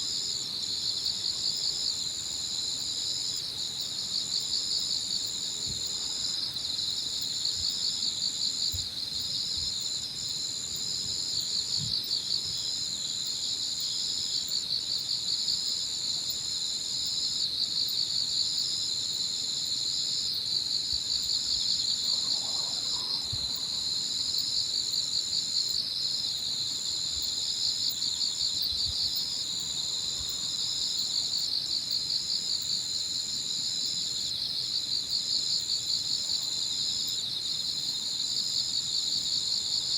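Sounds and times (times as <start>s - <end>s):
insect pulsing chirring: 21.2s - 33.0s.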